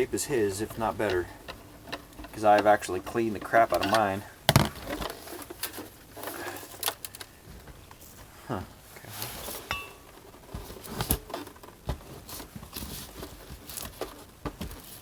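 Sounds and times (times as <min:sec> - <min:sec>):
screwdriver being handled: 0:01.0 - 0:07.3.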